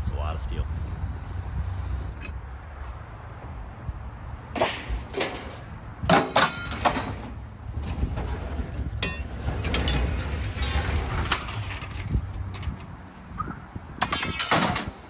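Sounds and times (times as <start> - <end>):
low engine rumble: 0.0 - 4.6
scrap steel clanking: 4.5 - 12.9.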